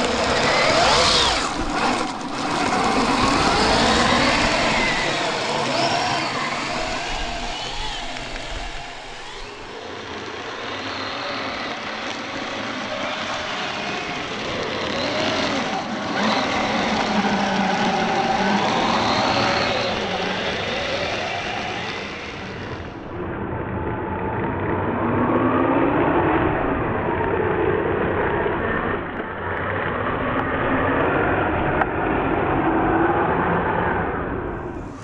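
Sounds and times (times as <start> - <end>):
electric motor whining: 0.0 - 23.1, 34.4 - 35.0.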